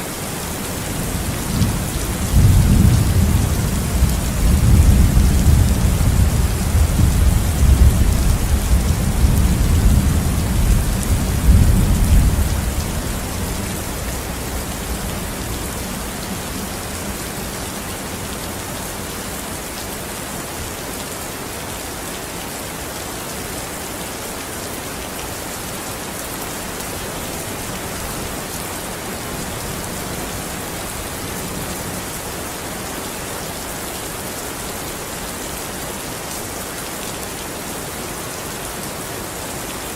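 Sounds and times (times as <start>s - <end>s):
heavy rain: 0.0s - 39.9s
low thunder rumble: 1.1s - 15.8s.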